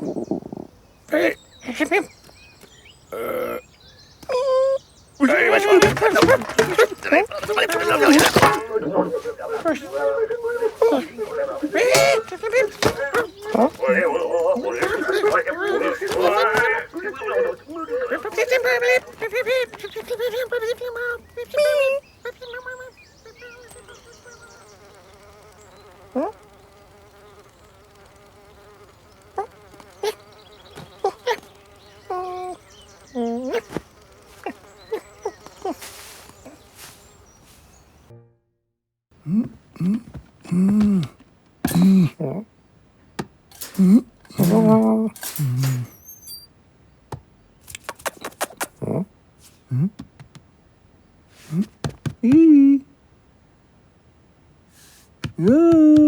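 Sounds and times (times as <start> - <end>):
low grunt: 3.1 - 3.6, 39.2 - 42.4, 43.6 - 46.0
high squeaks: 5.2 - 37.0, 43.5 - 46.5
cartoon fly buzzing: 5.2 - 38.1, 43.5 - 46.5
rising squeaks: 43.5 - 46.5.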